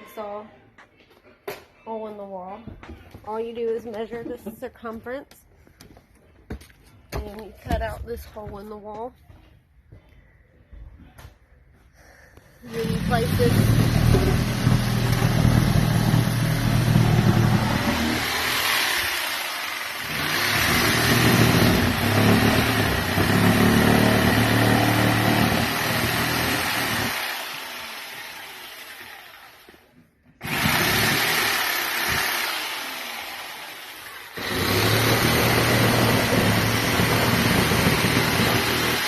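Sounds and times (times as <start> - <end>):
electric jigsaw cutting: 12.7 - 39.0.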